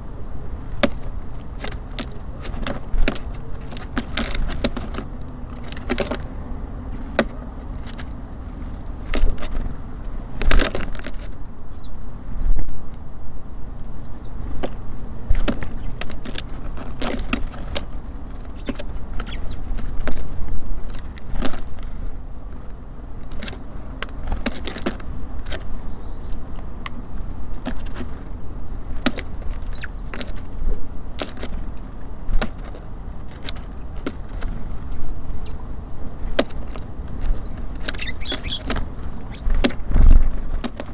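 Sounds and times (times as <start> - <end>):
birds pecking on feeder: 0.0 - 12.5, 14.0 - 40.9
faint high bird chirps: 11.7 - 12.0, 18.6 - 19.6, 25.6 - 26.3, 29.6 - 30.1, 35.4 - 35.8, 37.3 - 38.7.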